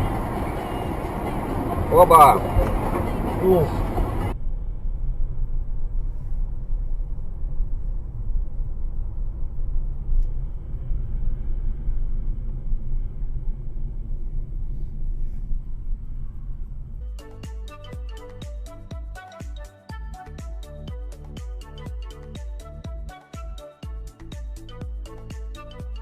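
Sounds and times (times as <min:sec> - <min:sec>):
vehicle rumble: 0:00.0 - 0:18.8.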